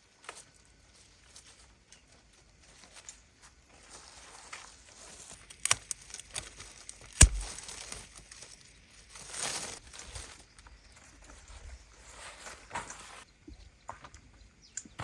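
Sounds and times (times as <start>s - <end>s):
leaves and stems rustling: 0.0s - 13.3s
shears snipping stems: 5.3s - 8.3s.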